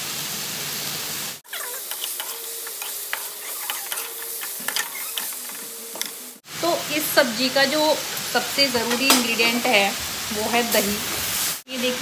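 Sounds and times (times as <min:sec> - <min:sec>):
masala sizzling in a pan: 0:00.0 - 0:12.0
spatula scraping a pan: 0:01.5 - 0:06.2.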